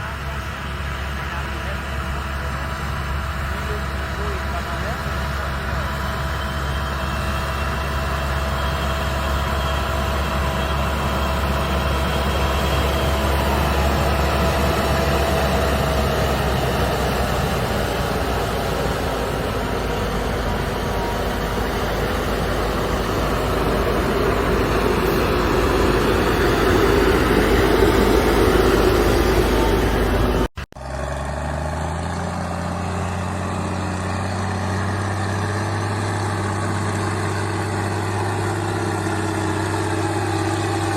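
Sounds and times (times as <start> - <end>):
farm machinery engine running: 0.0 - 40.9
lower-pitched engine: 0.0 - 40.9.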